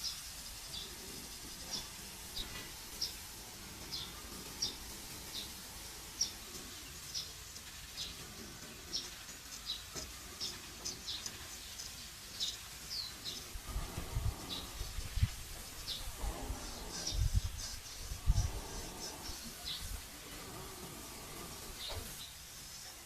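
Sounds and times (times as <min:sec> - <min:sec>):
low handling bumps: 0:13.2 - 0:22.2
razor scraping stubble: 0:13.2 - 0:22.3.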